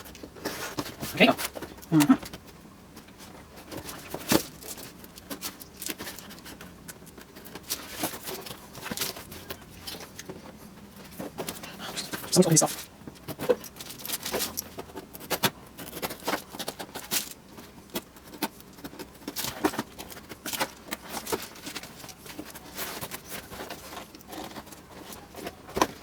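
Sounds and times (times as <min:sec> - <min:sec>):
packaging crinkling and scraping: 0:00.0 - 0:26.0.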